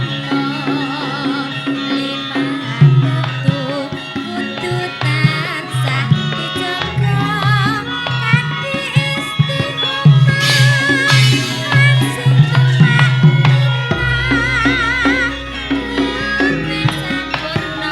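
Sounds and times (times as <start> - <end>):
gamelan music: 0.0 - 17.9
hand drum strokes: 0.0 - 17.9.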